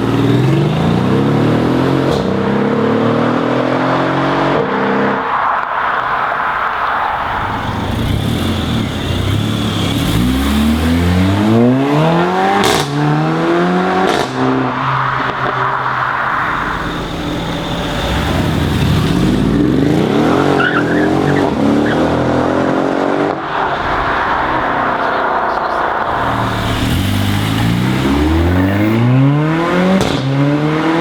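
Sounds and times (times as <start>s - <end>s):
car engine revving hard: 0.0s - 5.2s, 7.4s - 31.0s
sharp exhaust cracks: 5.2s - 30.6s
tyres hissing in wheelspin: 23.2s - 29.0s.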